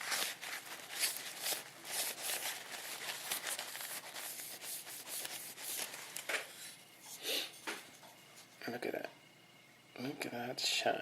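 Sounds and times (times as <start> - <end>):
hand rubbing plastic model car: 0.0 - 6.8.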